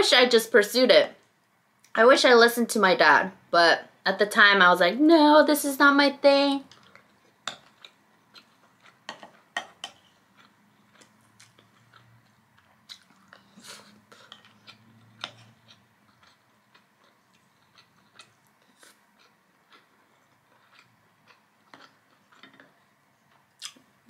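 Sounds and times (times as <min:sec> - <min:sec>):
chewing with mouth clicks: 0:06.7 - 0:23.9.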